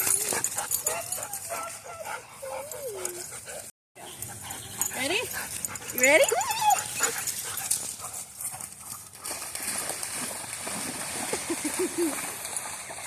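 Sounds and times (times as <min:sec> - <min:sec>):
dogs splashing through water: 0:04.6 - 0:13.0.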